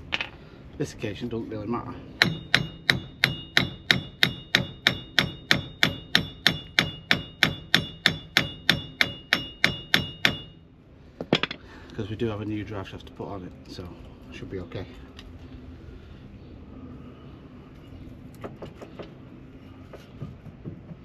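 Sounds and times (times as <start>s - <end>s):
hammer striking steel: 2.2s - 10.6s.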